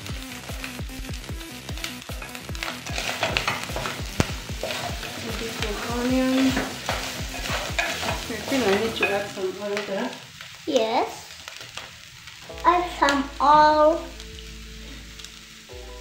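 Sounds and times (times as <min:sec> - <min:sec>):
meat and onions sizzling: 0:00.0 - 0:16.0
wooden spoon scraping pot: 0:02.3 - 0:09.3.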